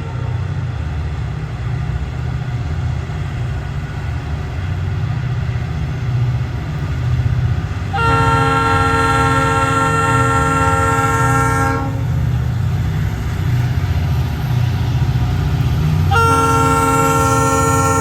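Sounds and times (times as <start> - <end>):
diesel locomotive rumbling: 0.0 - 18.0
train air horn chord: 7.9 - 12.2, 16.1 - 18.0.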